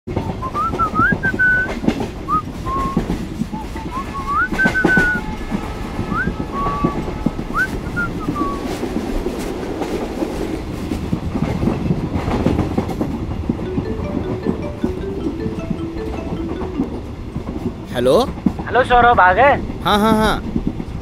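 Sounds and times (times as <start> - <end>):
wheels clacking over rail joints: 0.1 - 18.8
train rumble: 0.1 - 21.0
man whistling a tune: 0.2 - 5.3, 6.1 - 8.7.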